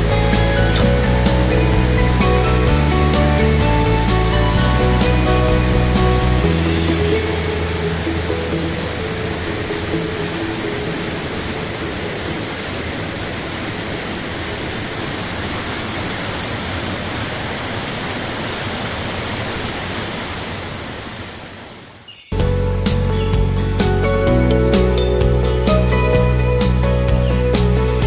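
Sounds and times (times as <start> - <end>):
fast-flowing water rushing: 0.7 - 22.0.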